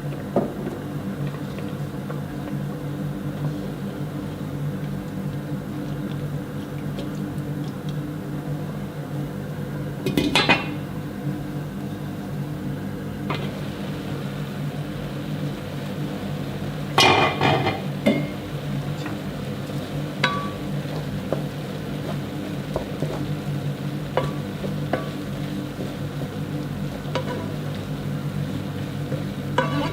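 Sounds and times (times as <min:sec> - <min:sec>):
dishes and pots clattering: 0:10.1 - 0:10.8, 0:17.0 - 0:18.4, 0:27.1 - 0:27.5, 0:29.6 - 0:29.9.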